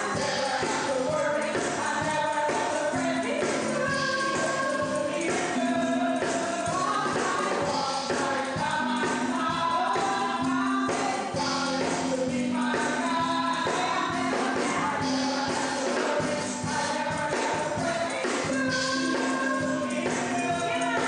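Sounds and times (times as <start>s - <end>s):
choir singing over a beat: 0.0s - 21.0s
tambourine shaking: 0.0s - 21.0s.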